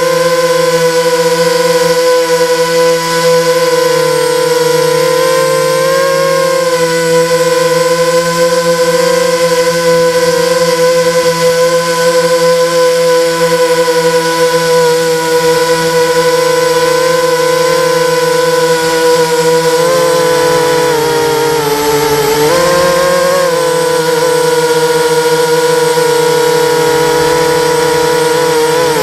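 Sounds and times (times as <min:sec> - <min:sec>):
quadcopter propellers whining: 0:00.0 - 0:29.0.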